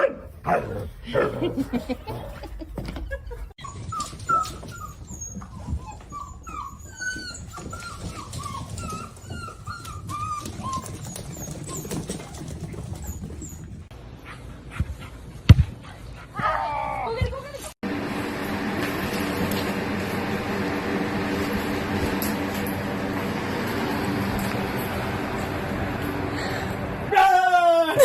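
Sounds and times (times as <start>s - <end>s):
dog whimpering: 3.6s - 13.8s.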